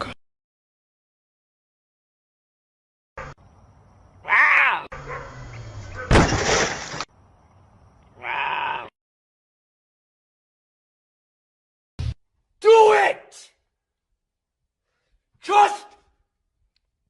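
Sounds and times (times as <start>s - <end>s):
bleat-like pitched cry: 4.2s - 4.9s, 8.2s - 8.9s.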